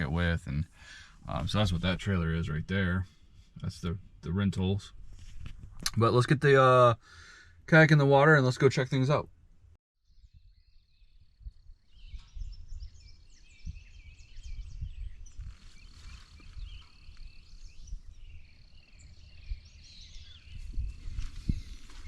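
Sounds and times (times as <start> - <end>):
birds chirping and trilling: 0.0 - 5.0, 10.1 - 22.0.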